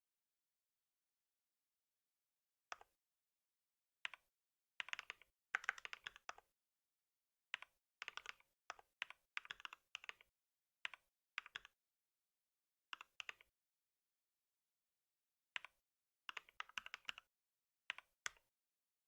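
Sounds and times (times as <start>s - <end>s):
typing on a keyboard: 4.8s - 6.4s, 7.6s - 11.7s, 13.0s - 13.5s, 15.6s - 17.3s, 17.9s - 18.4s.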